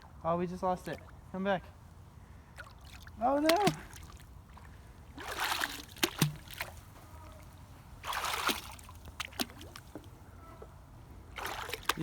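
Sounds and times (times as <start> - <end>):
water splashing: 2.6 - 10.2, 11.3 - 12.0.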